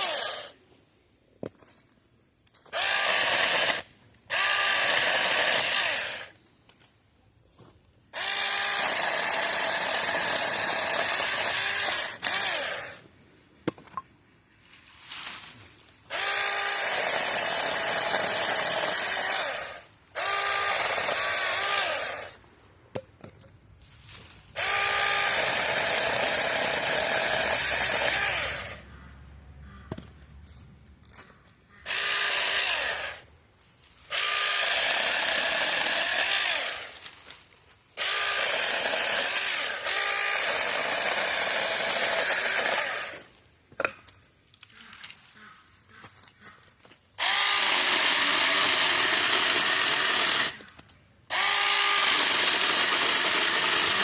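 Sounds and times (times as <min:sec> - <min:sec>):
mini chainsaw cutting wood: 0:00.0 - 0:00.6, 0:02.7 - 0:06.4, 0:08.1 - 0:13.0, 0:16.1 - 0:22.4, 0:24.5 - 0:28.9, 0:31.8 - 0:33.3, 0:34.0 - 0:37.2, 0:38.0 - 0:43.4, 0:47.2 - 0:54.0.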